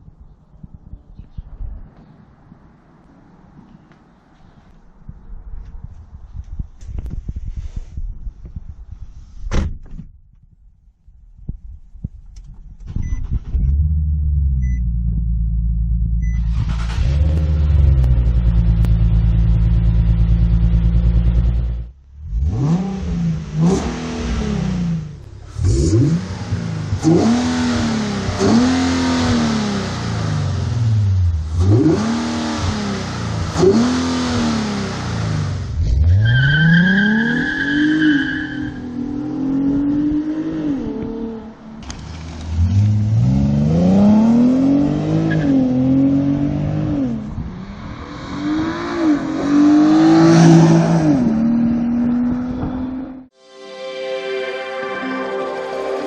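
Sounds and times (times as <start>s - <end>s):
car engine idling and revving: 11.5s - 53.3s.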